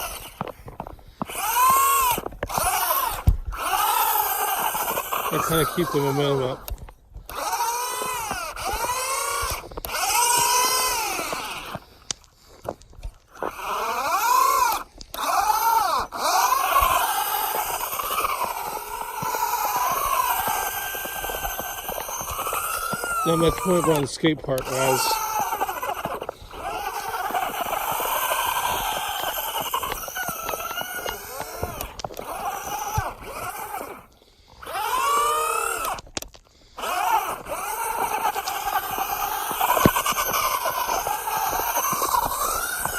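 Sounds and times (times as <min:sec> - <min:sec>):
toy car electric motor whining: 0:00.0 - 0:42.9.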